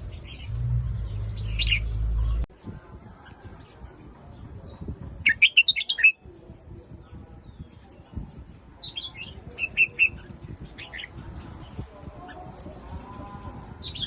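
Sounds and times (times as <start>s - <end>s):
bird warbling song: 0.0s - 2.4s.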